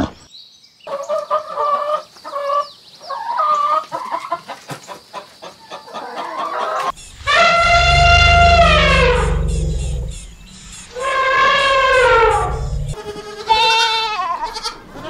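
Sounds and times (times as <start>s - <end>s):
chickens clucking: 0.9s - 7.0s.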